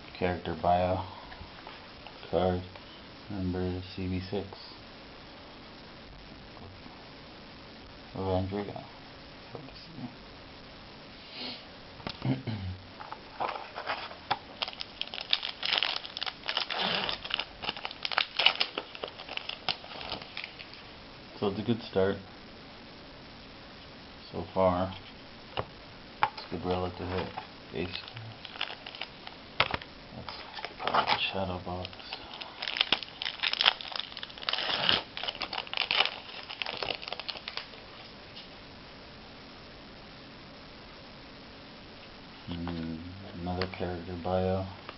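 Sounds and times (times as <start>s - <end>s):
foil wrapper crinkling: 13.3s - 20.9s, 26.4s - 38.1s.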